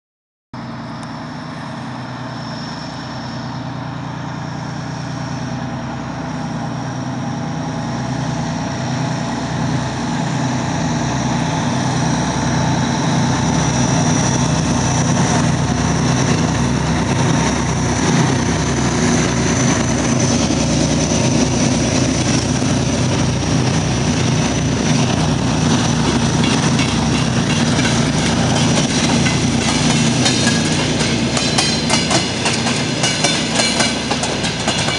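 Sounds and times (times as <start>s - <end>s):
locomotive engines droning: 0.6s - 34.9s
wheels clacking over rail joints: 14.3s - 34.9s.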